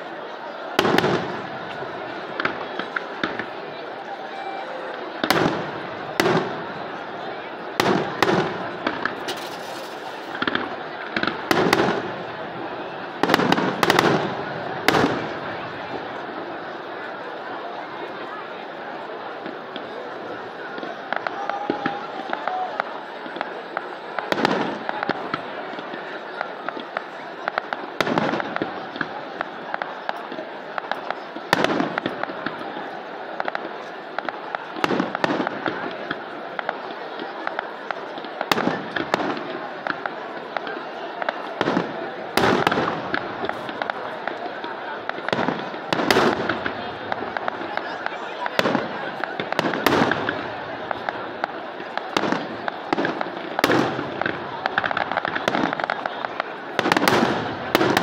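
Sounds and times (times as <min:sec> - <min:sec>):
continuous rumble of fireworks: 0:00.0 - 0:58.0
firework shells bursting: 0:07.8 - 0:12.0
firework shell bursts: 0:09.0 - 0:10.7.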